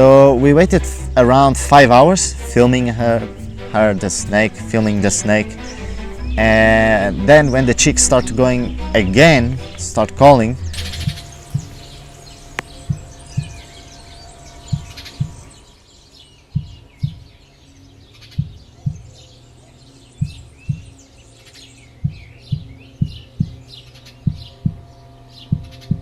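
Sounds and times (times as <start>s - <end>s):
low double thumps: 0.0s - 15.7s, 16.6s - 17.3s, 20.2s - 21.0s, 22.0s - 23.6s, 24.2s - 24.9s
bird chicks chirping: 4.8s - 26.0s.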